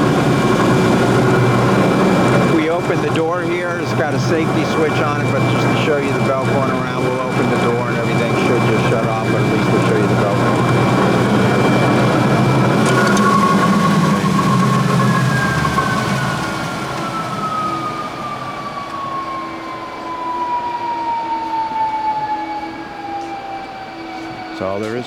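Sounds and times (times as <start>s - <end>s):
belt grinder humming: 0.0s - 19.3s
motor whine spinning down: 0.0s - 25.0s.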